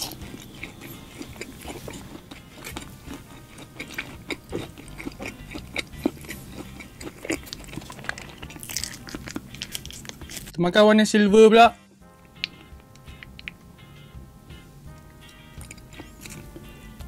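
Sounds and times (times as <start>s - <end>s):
chewing crunchy fried food: 0.0s - 10.6s, 12.1s - 13.6s, 14.9s - 17.0s
mouth clicks: 12.2s - 13.6s.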